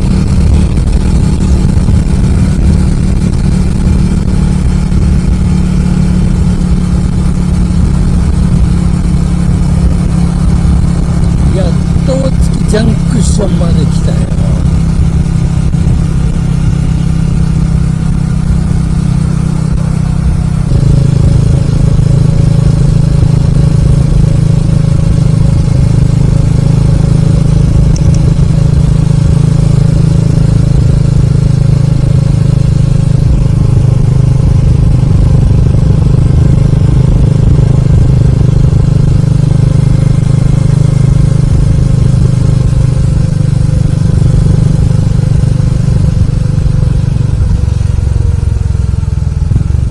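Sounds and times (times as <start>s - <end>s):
wind noise on microphone: 0.0s - 5.7s
motorcycle engine drone: 0.0s - 49.9s.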